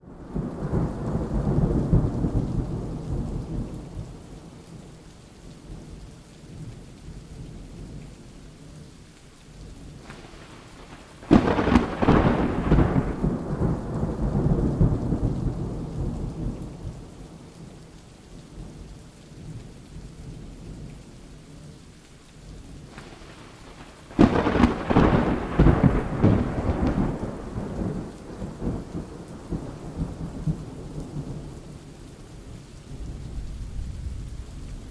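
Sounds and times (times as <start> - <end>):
steady rain falling: 0.0 - 34.9
thunder rolling: 10.0 - 17.2, 22.9 - 31.5.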